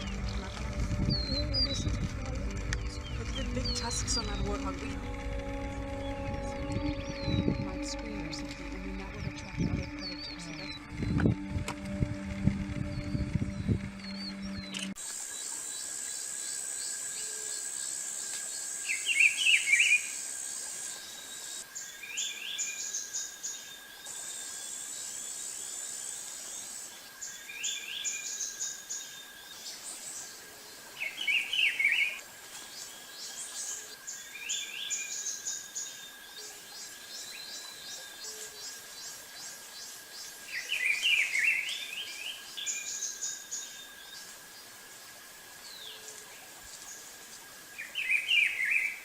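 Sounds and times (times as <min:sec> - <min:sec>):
bird calling: 0:00.0 - 0:15.0
insect buzz and chirps: 0:00.0 - 0:49.0.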